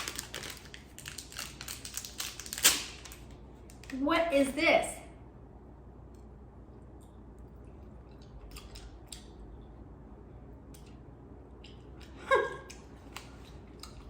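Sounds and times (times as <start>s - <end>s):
plastic candy wrapper crinkling: 0.0s - 4.0s.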